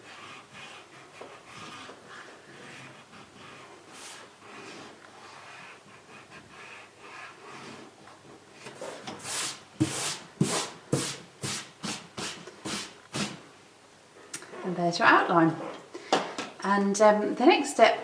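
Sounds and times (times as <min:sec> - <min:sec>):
eraser rubbing on paper: 0:00.0 - 0:07.9, 0:08.8 - 0:13.4.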